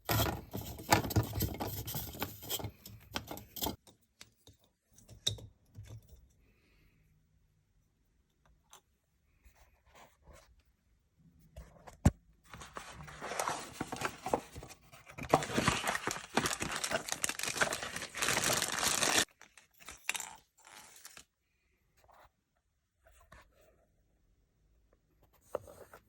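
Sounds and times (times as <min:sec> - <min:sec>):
dense crinkling and rustling: 0:00.0 - 0:03.8, 0:12.5 - 0:21.4.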